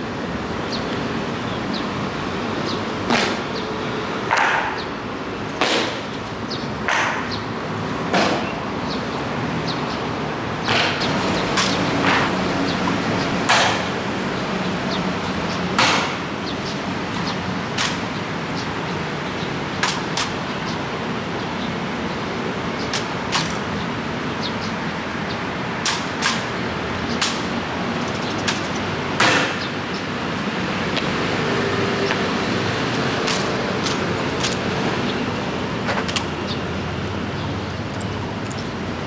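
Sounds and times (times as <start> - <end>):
boots striking pavement: 0.7 - 7.4, 25.8 - 39.0.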